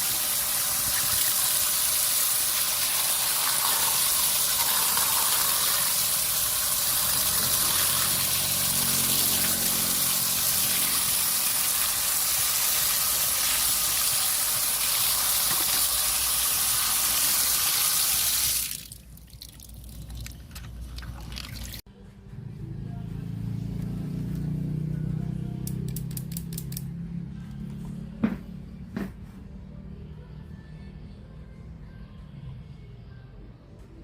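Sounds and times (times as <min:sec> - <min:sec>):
sharp click: 0:25.7 - 0:26.9.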